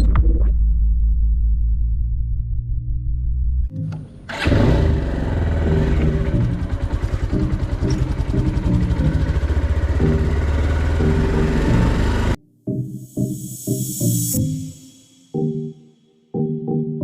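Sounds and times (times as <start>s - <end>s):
vehicle engine running: 4.3s - 12.4s.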